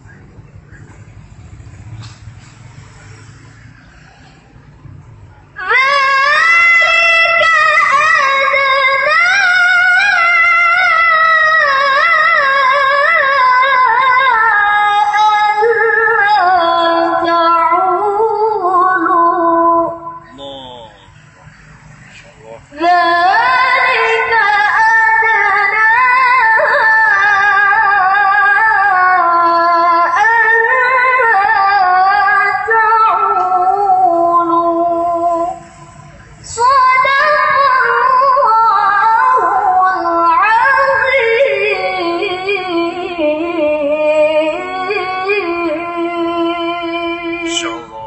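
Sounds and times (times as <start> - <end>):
solo voice chanting recitation: 19.4 - 21.2, 46.9 - 48.0.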